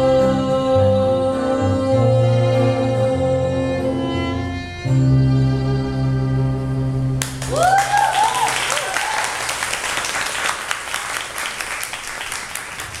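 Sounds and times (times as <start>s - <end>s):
audience applause: 7.2s - 13.0s
cheering whoops: 7.3s - 10.6s.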